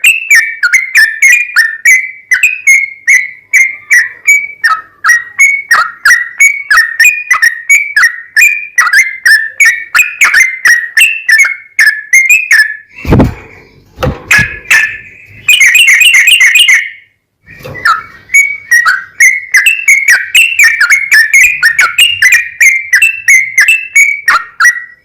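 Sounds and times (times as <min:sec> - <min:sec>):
bird whistled chirps: 0:00.0 - 0:25.0.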